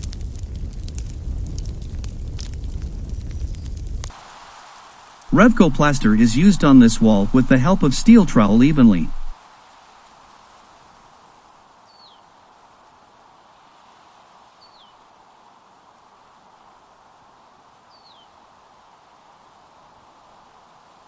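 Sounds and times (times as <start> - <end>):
faint background hiss: 4.2 - 10.7.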